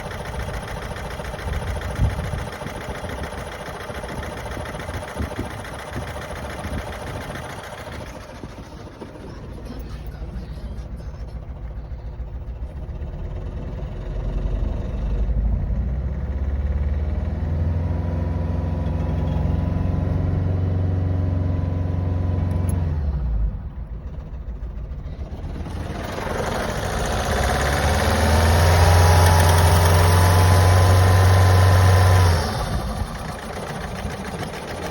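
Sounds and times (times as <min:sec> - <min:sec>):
car engine revving: 0:08.0 - 0:34.9.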